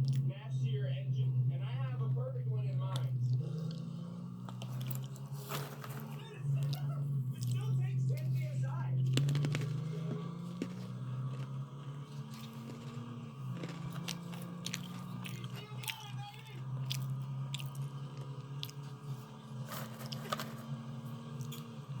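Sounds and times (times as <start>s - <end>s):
person chewing crunchy snack: 0.0s - 0.2s, 3.3s - 7.7s, 9.1s - 22.0s
steady low hum: 0.0s - 22.0s.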